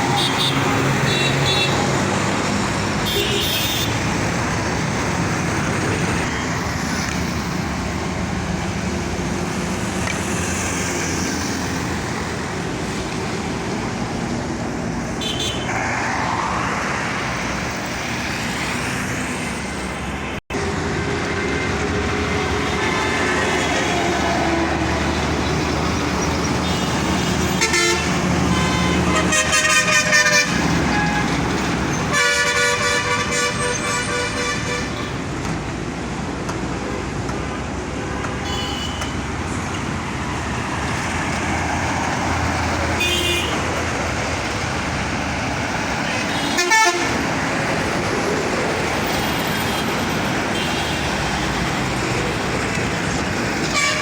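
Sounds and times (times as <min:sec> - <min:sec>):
horns honking: 0:00.0 - 0:02.0, 0:03.0 - 0:04.0, 0:26.6 - 0:35.2, 0:38.0 - 0:39.9, 0:43.0 - 0:43.7, 0:46.1 - 0:47.2, 0:53.6 - 0:54.0.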